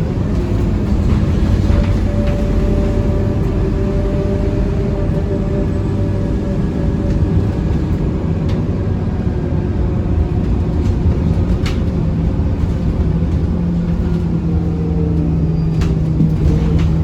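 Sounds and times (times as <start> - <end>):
bus diesel engine running: 0.0 - 17.0
road rumble: 0.0 - 17.0.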